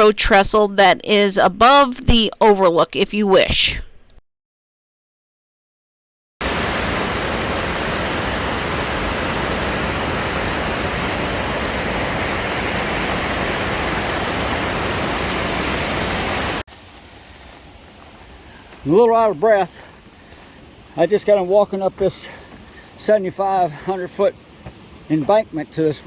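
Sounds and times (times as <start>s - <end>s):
waterfall roaring: 6.4s - 26.0s.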